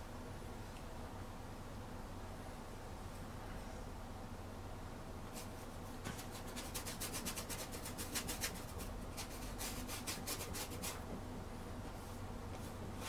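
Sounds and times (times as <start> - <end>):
paintbrush scrubbing on canvas: 5.4 - 11.0.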